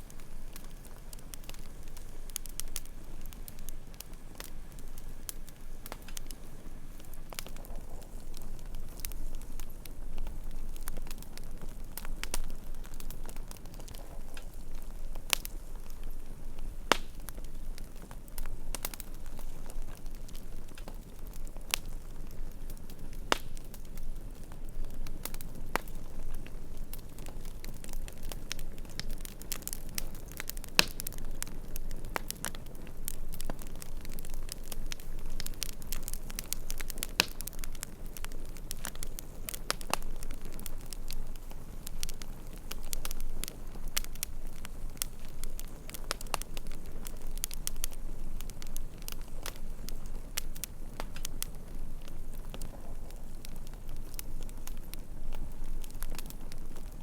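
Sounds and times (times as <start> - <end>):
campfire crackling and popping: 0.0 - 57.0
low rumble of flames: 0.0 - 57.0.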